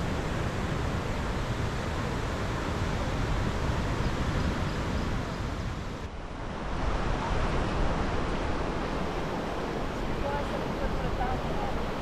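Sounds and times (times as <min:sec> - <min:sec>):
rushing wind and surf: 0:00.0 - 0:12.0.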